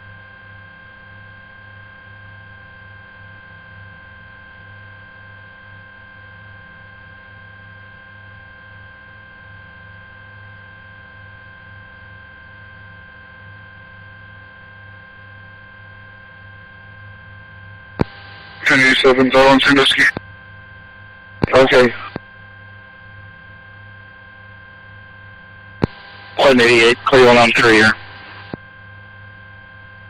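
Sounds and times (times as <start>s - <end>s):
helicopter cabin drone: 14.5s - 30.0s
high steady whine: 18.0s - 20.2s, 21.1s - 22.3s, 24.0s - 30.0s.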